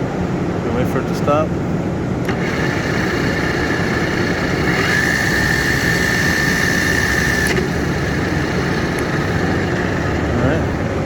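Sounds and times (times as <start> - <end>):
high whine: 1.6 - 11.0
drill press drone: 2.2 - 11.0.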